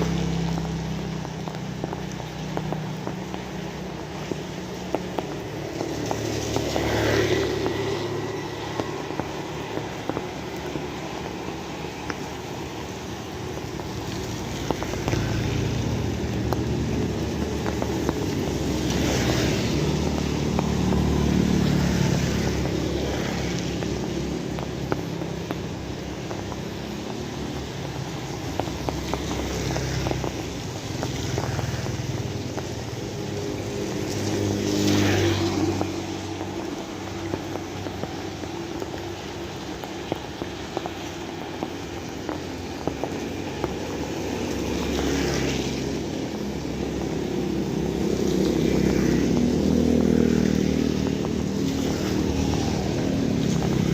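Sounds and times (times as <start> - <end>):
steady rain: 0.0 - 53.9
vehicles passing: 0.0 - 53.9
water drips: 0.0 - 53.9.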